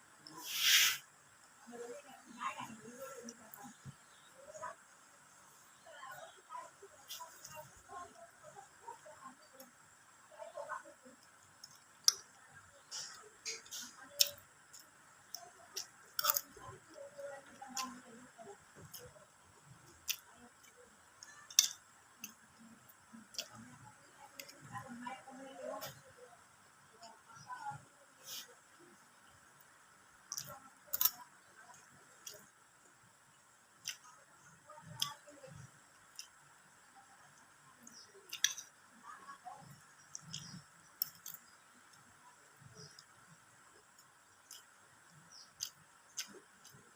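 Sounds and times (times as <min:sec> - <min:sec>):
wet mouth clicks while chewing: 0:11.2 - 0:16.6, 0:19.9 - 0:23.6, 0:29.6 - 0:32.5, 0:33.8 - 0:34.1, 0:35.0 - 0:35.2, 0:37.8 - 0:38.8, 0:39.6 - 0:43.1, 0:43.9 - 0:46.8.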